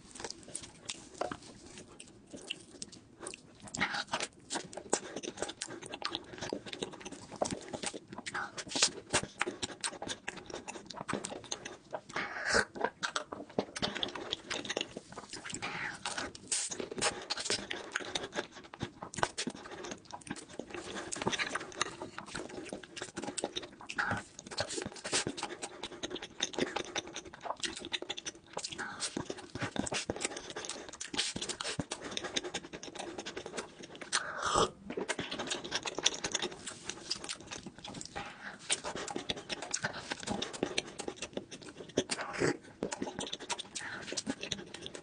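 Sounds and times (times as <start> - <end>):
wet chewing: 0.0 - 45.0
lip smacks and mouth clicks: 0.2 - 34.3, 34.9 - 45.0
breathing: 38.2 - 39.1, 43.7 - 44.2.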